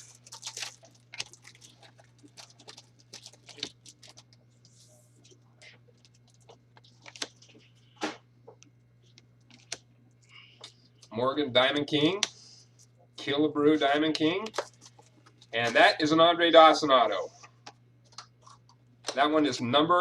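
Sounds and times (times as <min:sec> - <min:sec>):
low electrical hum: 0:00.0 - 0:20.0
cards clicking and rustling: 0:06.0 - 0:07.6.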